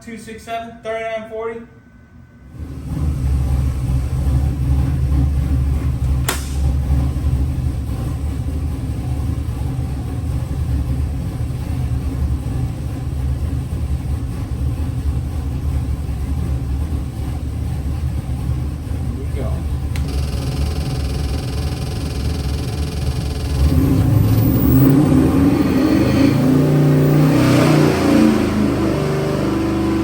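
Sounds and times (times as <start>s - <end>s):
engine deep rumble: 2.4s - 30.0s
sharp click: 6.2s - 6.7s.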